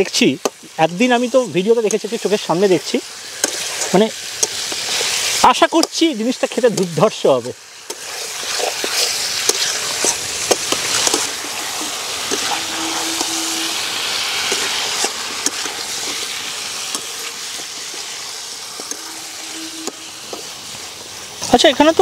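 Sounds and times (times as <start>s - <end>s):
curry sizzling in oil: 0.0s - 22.0s
metal spatula scraping pan: 9.6s - 14.6s, 18.7s - 20.6s.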